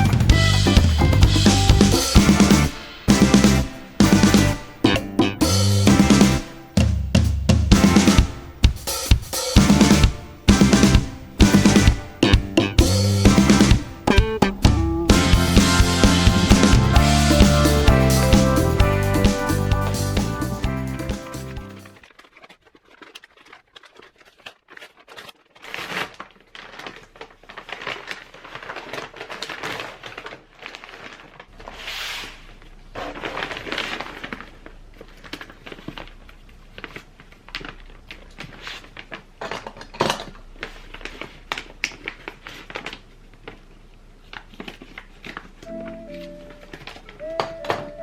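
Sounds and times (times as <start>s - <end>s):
crinkling and rustling: 21.9s - 48.0s.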